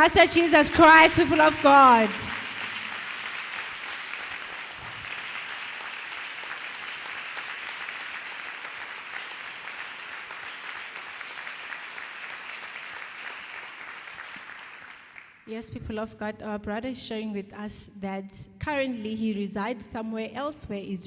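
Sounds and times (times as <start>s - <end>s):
congregation applauding: 0.0s - 15.4s.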